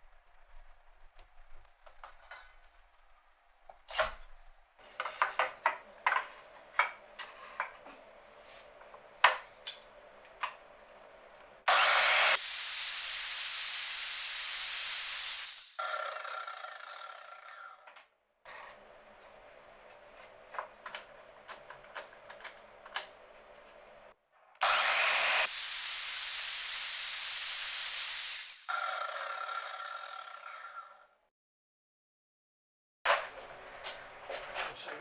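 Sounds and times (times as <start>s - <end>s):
mitre saw running: 11.7s - 17.5s, 24.6s - 30.8s.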